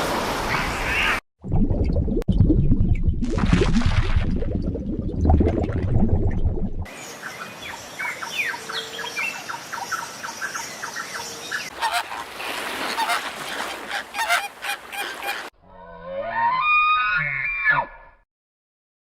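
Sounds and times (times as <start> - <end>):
flock of birds calling: 11.2 - 15.5.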